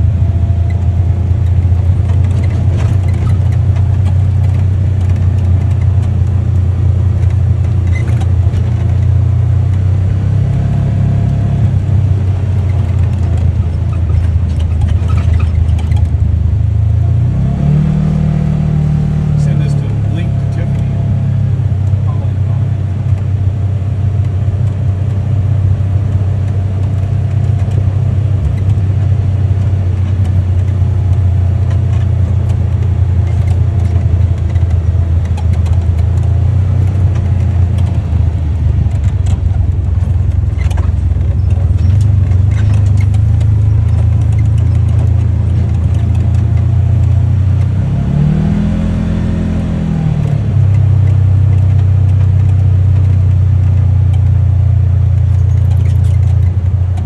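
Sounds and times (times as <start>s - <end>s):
vehicle engine running: 0.0s - 57.0s
clicks and rattles: 0.6s - 9.9s, 12.5s - 16.2s, 26.4s - 47.7s, 55.2s - 57.0s.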